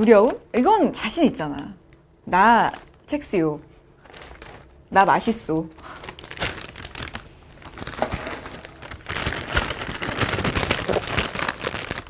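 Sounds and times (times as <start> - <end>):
cereal and plastic packaging rustling: 2.4 - 12.0.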